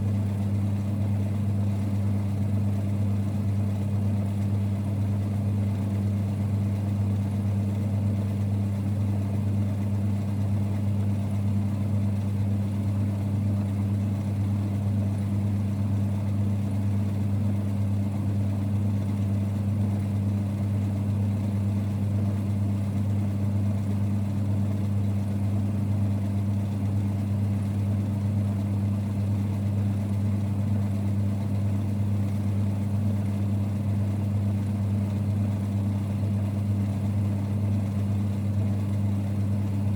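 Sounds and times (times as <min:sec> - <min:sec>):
lathe running low rumble: 0:00.0 - 0:39.9.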